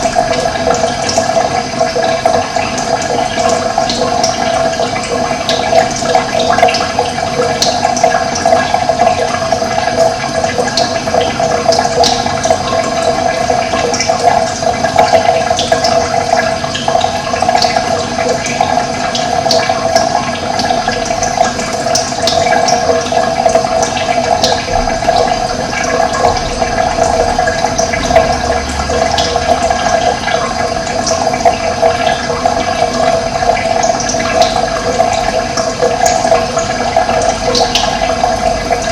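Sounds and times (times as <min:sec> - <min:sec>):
running water rushing: 0:00.0 - 0:38.9.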